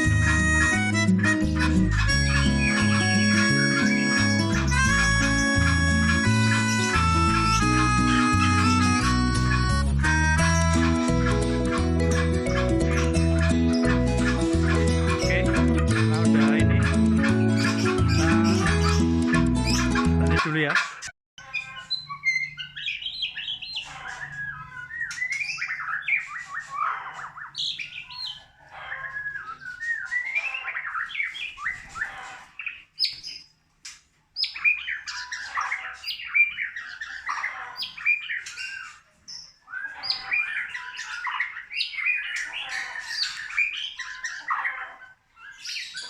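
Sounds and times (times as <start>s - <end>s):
songbird whistling: 0.0s - 9.8s, 21.6s - 32.2s, 34.4s - 44.8s.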